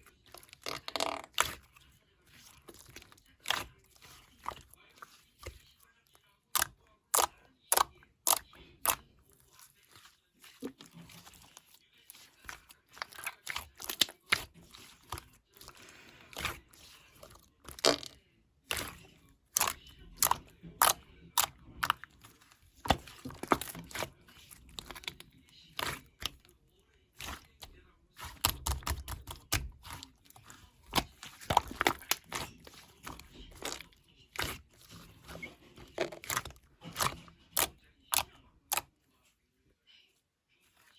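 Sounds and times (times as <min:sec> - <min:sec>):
clay crackling when kneaded: 0:06.4 - 0:39.0.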